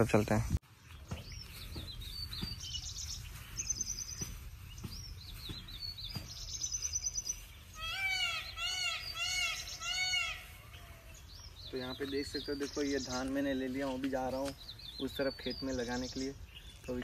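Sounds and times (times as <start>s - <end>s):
birds chirping and trilling: 0.0s - 17.0s
bird repeating arching call notes: 7.1s - 11.6s.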